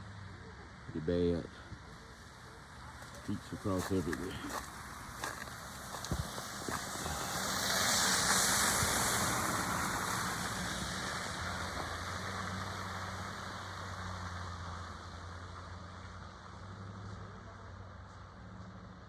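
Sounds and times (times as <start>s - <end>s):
tyre hiss on wet road: 4.8s - 14.5s.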